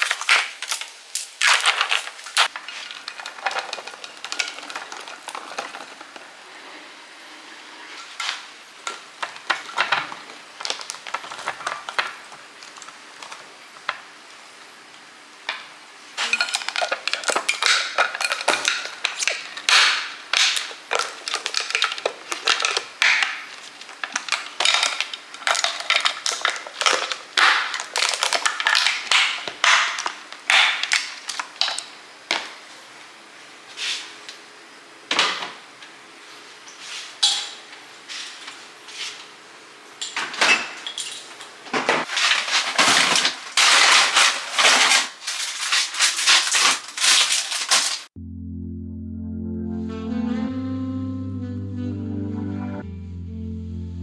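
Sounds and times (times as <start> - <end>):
plastic packaging crinkling: 0.0 - 6.4, 9.2 - 13.6, 20.4 - 31.8, 42.0 - 48.1
items clattering: 0.0 - 6.5, 7.9 - 13.9, 16.2 - 32.5, 40.0 - 48.1.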